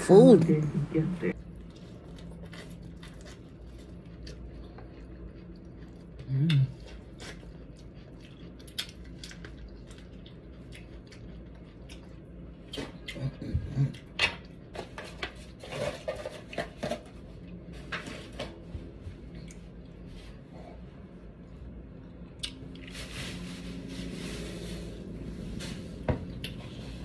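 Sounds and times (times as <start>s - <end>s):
low hum-like voice: 0.0s - 1.4s, 6.1s - 7.0s, 13.1s - 14.1s
chewing with wet mouth clicks: 1.3s - 14.6s, 22.4s - 22.6s.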